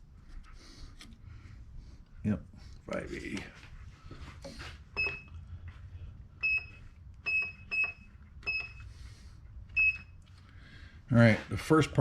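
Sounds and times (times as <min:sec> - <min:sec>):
keypad beeps: 0:05.0 - 0:05.4, 0:06.4 - 0:08.9, 0:09.7 - 0:10.2.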